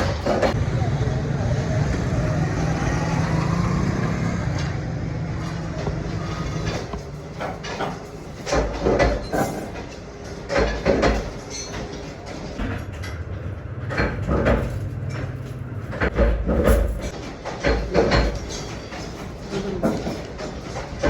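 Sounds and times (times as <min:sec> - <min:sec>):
loud clattering knocks: 0:00.0 - 0:00.9, 0:01.9 - 0:21.0
machine whining: 0:00.0 - 0:08.4.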